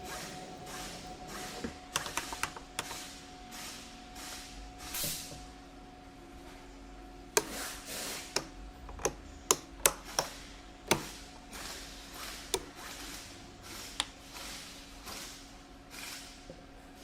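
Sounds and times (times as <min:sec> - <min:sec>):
faint steady hum: 0:00.0 - 0:17.0
hand tools clicking and knocking: 0:07.4 - 0:07.7, 0:08.3 - 0:11.2, 0:12.5 - 0:12.9.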